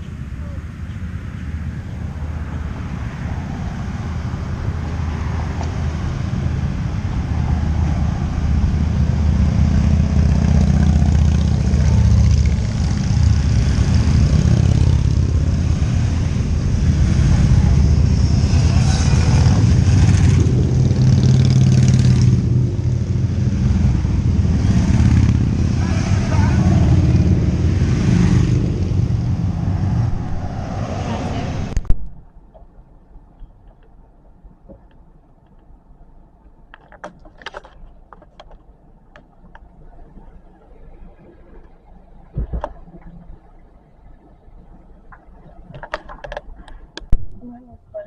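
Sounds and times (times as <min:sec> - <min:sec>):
vehicle engine running: 0:04.1 - 0:30.3.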